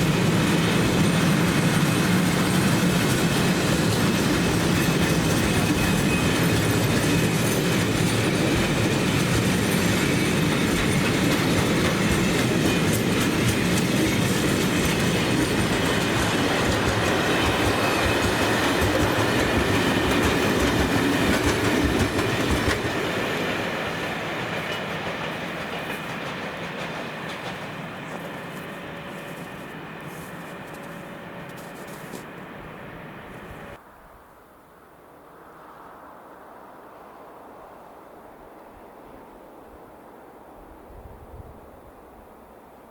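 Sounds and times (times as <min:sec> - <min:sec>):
wheels clicking over rail joints: 0:00.0 - 0:32.5
train rumbling past: 0:00.0 - 0:33.8.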